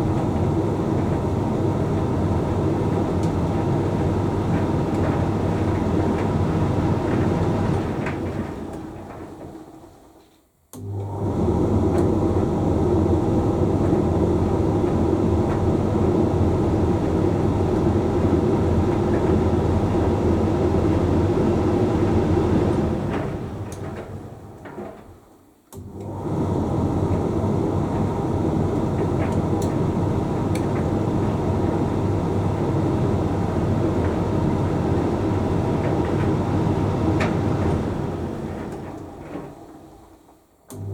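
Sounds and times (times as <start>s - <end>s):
tumble dryer humming: 25.8s - 40.0s.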